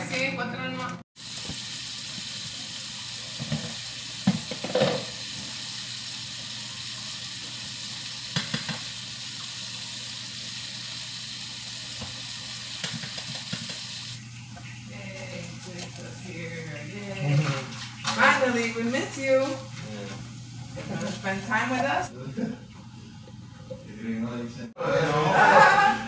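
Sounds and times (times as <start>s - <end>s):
food sizzling in pans: 1.2s - 22.1s
utensil knocking against pans: 3.4s - 5.1s, 8.3s - 8.9s.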